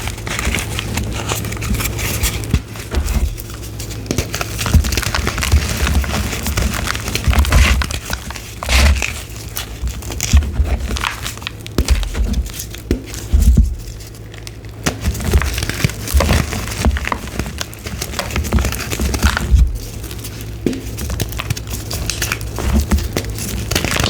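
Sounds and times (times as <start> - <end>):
chalk being crushed: 14.9 - 24.0.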